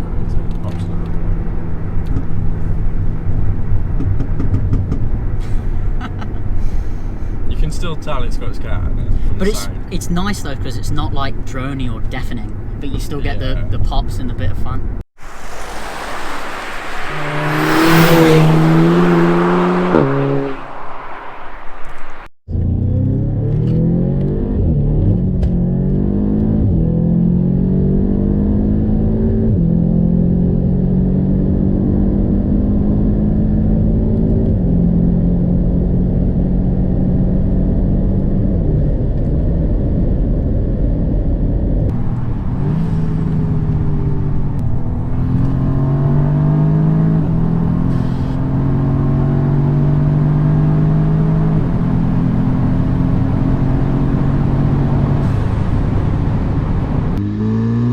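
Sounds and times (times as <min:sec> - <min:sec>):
car engine revving through gears: 0:15.2 - 0:38.8, 0:41.9 - 0:57.9.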